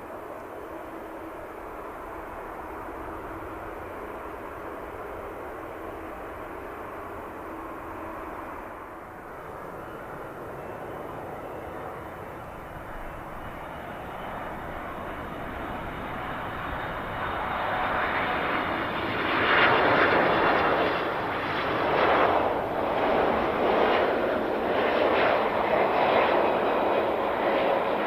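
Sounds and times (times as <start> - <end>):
airliner engines passing: 0.0 - 28.0.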